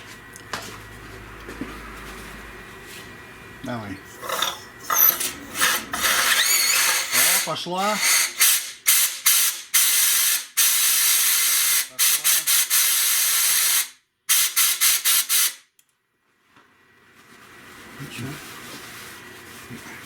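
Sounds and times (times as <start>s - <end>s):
compressed-air blow gun hissing: 8.0s - 10.9s.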